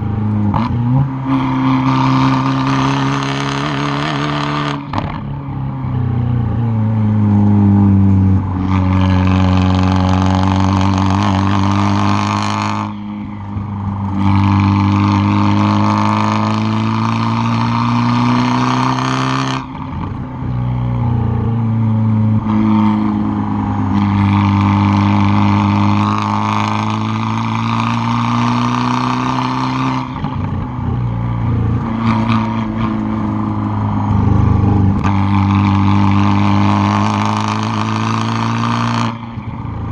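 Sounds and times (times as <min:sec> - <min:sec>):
car exhaust under hard acceleration: 0:00.0 - 0:39.9.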